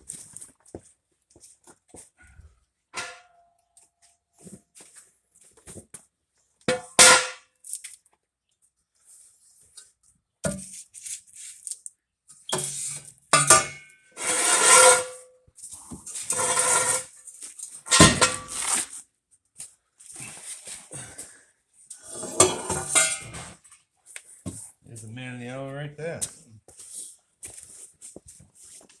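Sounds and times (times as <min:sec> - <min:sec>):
metal scraping and rattling: 0:12.7 - 0:15.2, 0:16.1 - 0:17.2, 0:17.9 - 0:18.9, 0:22.1 - 0:23.6.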